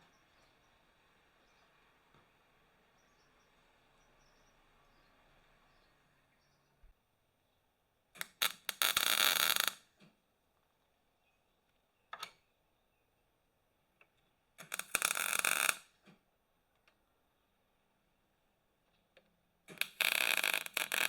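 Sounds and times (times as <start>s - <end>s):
welder crackling hiss: 19.7s - 21.0s.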